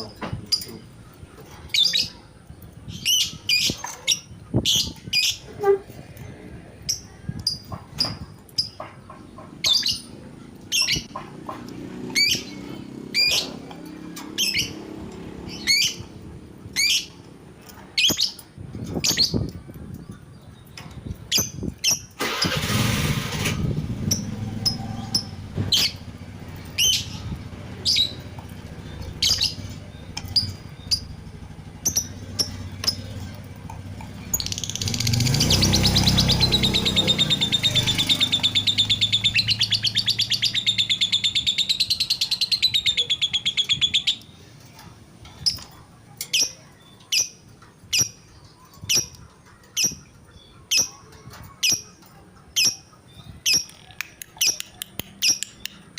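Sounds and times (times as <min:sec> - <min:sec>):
motor vehicle rumbling: 0:00.0 - 0:55.9
lovebird chirping: 0:24.1 - 0:44.5.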